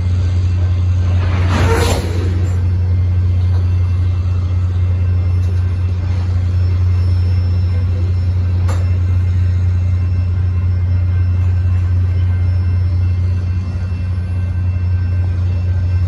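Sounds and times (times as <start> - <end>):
freight train wheels rumbling on rail: 0.0 - 16.0.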